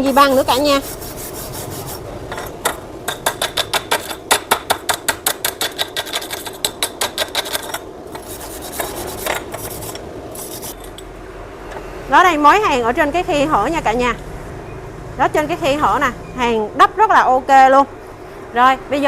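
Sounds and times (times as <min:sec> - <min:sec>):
wire brush scraping metal: 0:00.0 - 0:02.1, 0:05.6 - 0:11.0.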